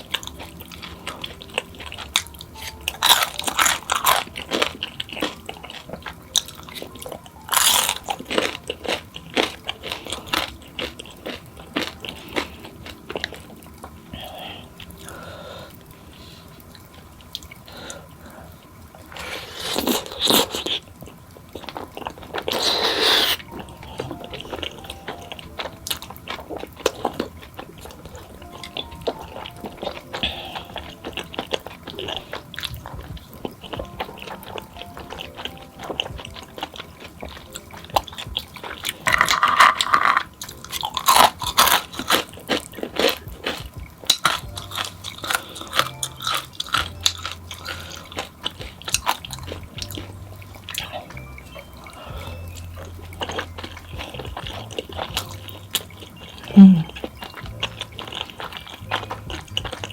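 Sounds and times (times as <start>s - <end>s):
person chewing: 0.0s - 59.9s
crunchy bites: 21.6s - 51.3s, 52.5s - 59.9s.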